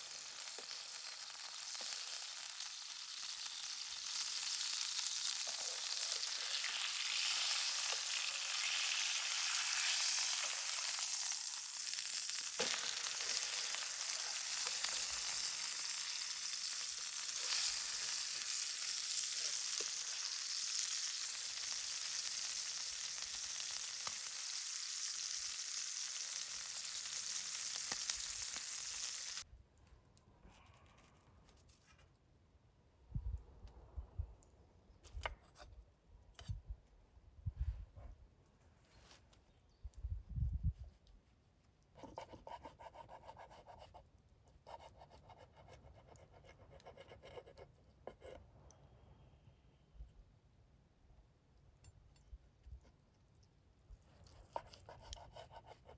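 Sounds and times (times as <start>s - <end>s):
campfire hissing and crackling: 0.0s - 29.5s.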